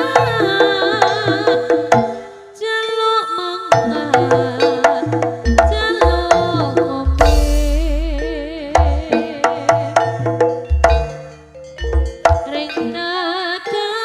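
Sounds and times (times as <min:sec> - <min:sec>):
hand drum strokes: 0:03.8 - 0:11.3
wavering melodic line: 0:05.5 - 0:09.4
deep gong booms: 0:07.2 - 0:08.6.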